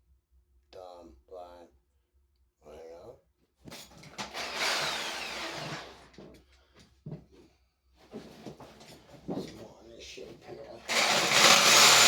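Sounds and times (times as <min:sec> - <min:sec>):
reciprocating saw cutting wood: 0:04.2 - 0:06.0, 0:10.9 - 0:12.0.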